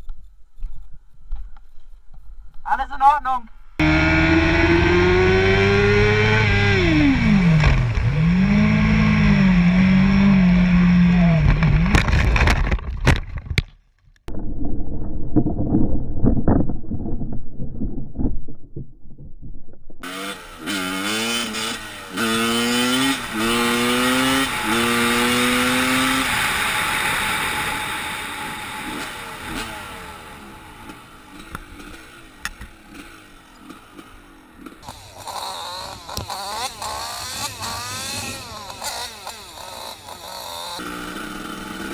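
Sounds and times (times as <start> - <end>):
motorcycle engine revving: 3.8 - 12.6, 20.0 - 41.9.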